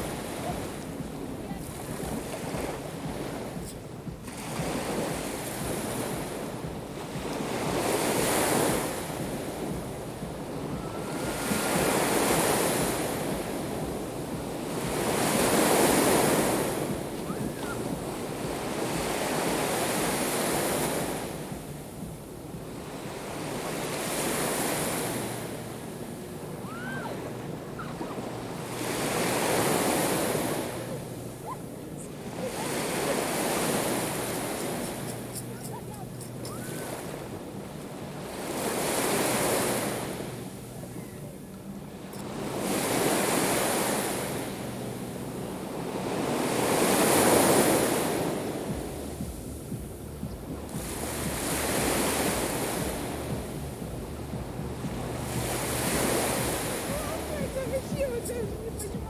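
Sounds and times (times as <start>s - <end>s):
waves breaking on shore: 0.0s - 59.0s.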